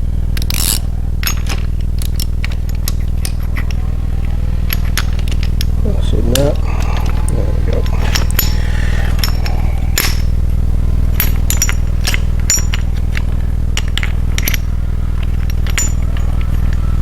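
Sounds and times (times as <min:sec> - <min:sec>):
steady low hum: 0:00.0 - 0:17.0
light metallic clinks and taps: 0:06.4 - 0:08.6, 0:11.2 - 0:16.8.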